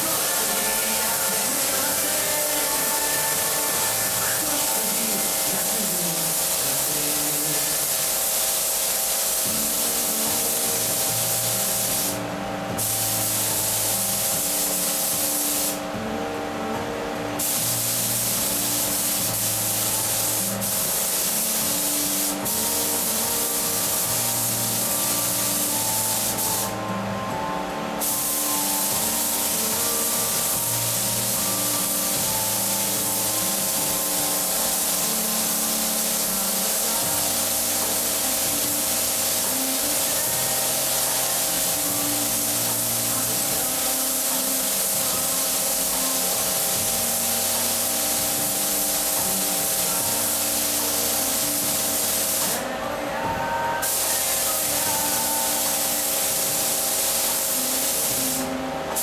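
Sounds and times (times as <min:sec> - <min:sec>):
spray gun hissing: 0:00.0 - 0:15.9, 0:17.4 - 0:27.2, 0:28.0 - 0:59.0.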